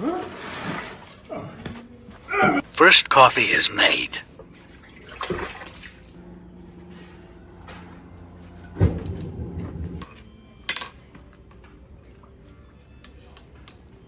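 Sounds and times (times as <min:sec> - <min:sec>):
heavy clunk: 0:08.6 - 0:10.0.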